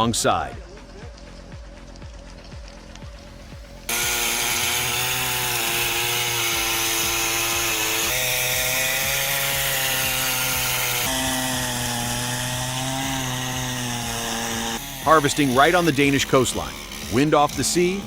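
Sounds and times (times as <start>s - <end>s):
chainsaw running: 3.8s - 18.0s.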